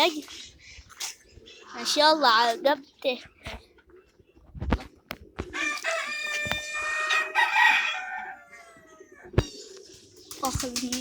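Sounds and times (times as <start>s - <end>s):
rooster crowing: 5.6s - 9.3s.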